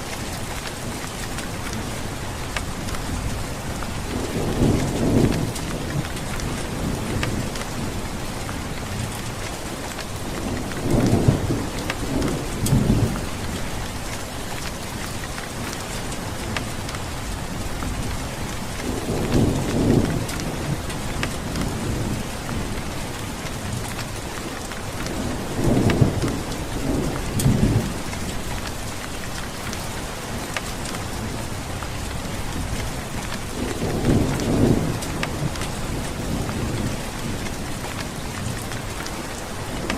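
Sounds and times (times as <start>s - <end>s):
heavy rain falling: 0.0s - 39.9s
thunder rumbling: 32.4s - 39.0s.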